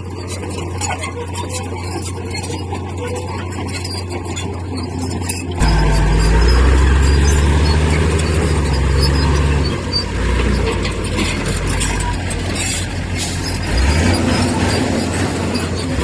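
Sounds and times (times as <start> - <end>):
diesel engine running: 0.0 - 16.0
light metallic rattling: 3.2 - 16.0.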